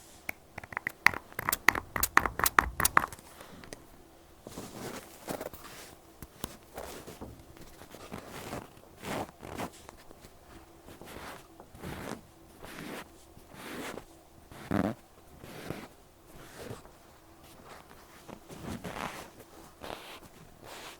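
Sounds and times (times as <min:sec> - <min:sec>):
cotton pad rubbing microphone: 0:01.4 - 0:03.2, 0:11.0 - 0:16.8.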